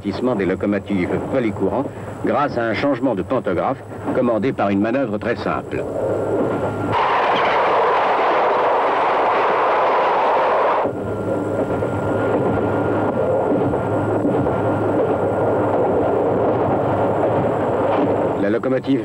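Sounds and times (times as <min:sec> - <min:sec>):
electric train running past: 0:00.0 - 0:19.0
low hum: 0:00.0 - 0:19.0.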